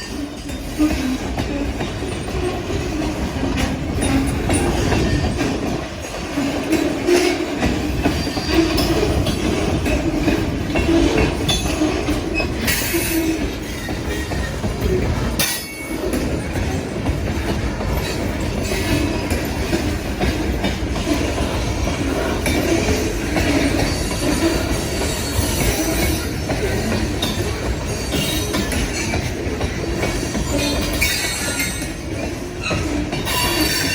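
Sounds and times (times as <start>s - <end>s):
freight train wheels rumbling: 0.0s - 33.9s
wheels clacking over rail joints: 0.0s - 33.9s
wheel squeal: 6.3s - 9.5s, 10.8s - 14.7s, 21.0s - 32.0s, 32.6s - 33.9s.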